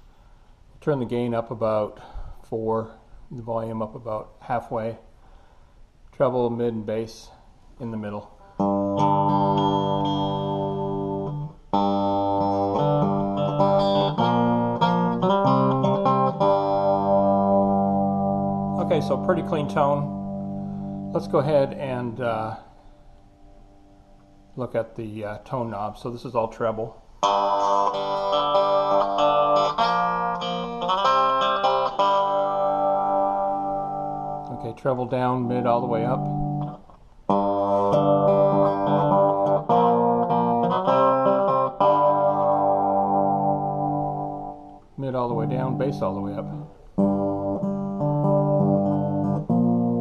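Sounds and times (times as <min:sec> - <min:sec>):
clean electric guitar chords: 0:08.4 - 0:22.6, 0:27.2 - 0:50.0
electric guitar picked notes: 0:08.4 - 0:24.6, 0:27.2 - 0:50.0.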